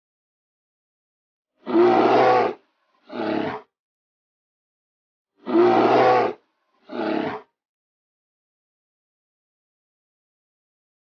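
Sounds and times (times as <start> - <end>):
wild animal roaring: 1.6 - 3.7, 5.4 - 7.6.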